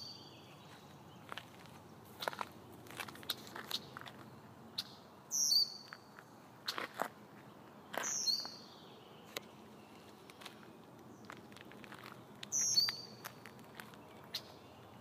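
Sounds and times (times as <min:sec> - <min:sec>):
high-pitched bird calls: 0:04.8 - 0:06.1, 0:07.9 - 0:10.7, 0:12.4 - 0:15.0.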